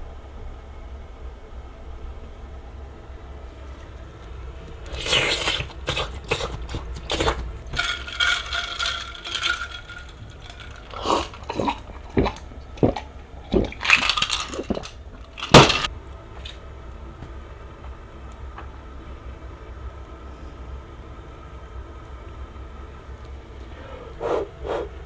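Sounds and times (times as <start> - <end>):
liquid pouring into glass: 4.7 - 15.9
ice clinking in glass: 4.9 - 16.6.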